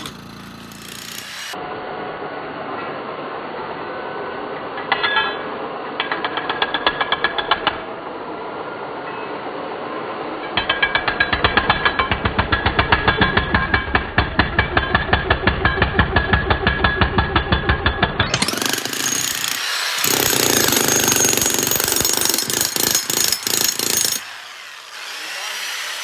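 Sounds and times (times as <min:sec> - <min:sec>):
jackhammer breaking concrete: 0:00.0 - 0:01.6, 0:14.6 - 0:26.0.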